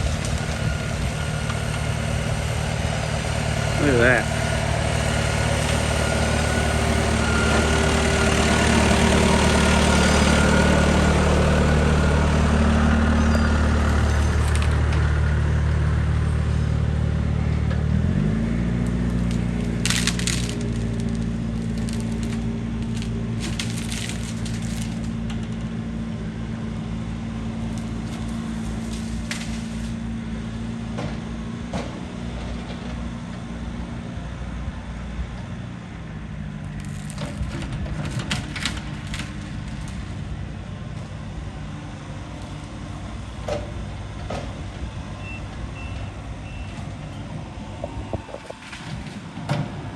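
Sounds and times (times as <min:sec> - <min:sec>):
tree cracking and splintering: 0:00.0 - 0:12.6, 0:13.6 - 0:15.1, 0:18.7 - 0:25.8, 0:27.6 - 0:30.1, 0:36.7 - 0:40.4, 0:48.0 - 0:49.2
excavator diesel engine under load: 0:00.0 - 0:49.9.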